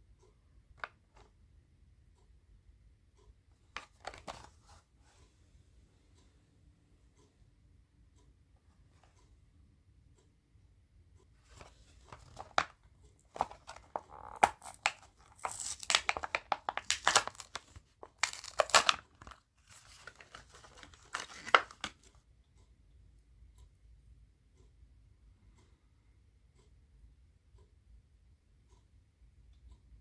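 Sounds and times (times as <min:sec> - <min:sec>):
plastic crinkling: 0:11.5 - 0:22.1
cardboard ripping: 0:18.2 - 0:19.0.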